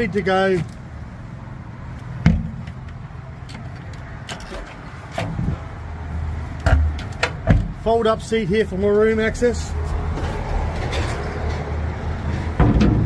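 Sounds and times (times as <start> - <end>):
knocks and clunks on metal: 2.2 - 3.7, 6.6 - 7.8, 12.3 - 13.0.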